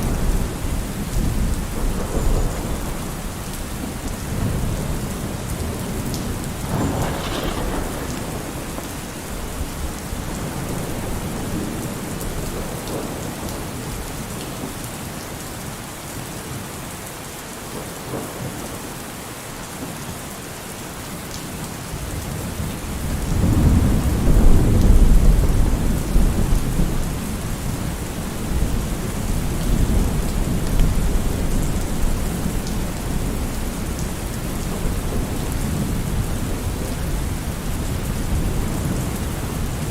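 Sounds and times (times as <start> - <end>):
thunder rumbling: 0.0 - 14.0, 22.0 - 39.9
heavy rain: 0.0 - 39.9.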